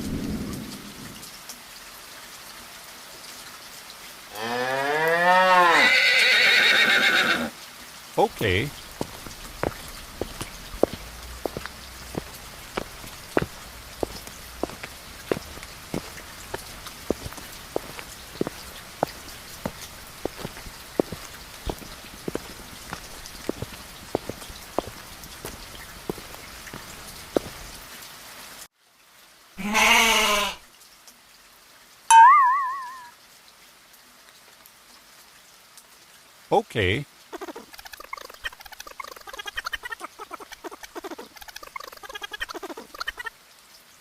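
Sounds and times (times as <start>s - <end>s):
rain falling: 0.0s - 32.1s, 33.0s - 44.0s
drops ticking on hard surface: 8.3s - 27.7s.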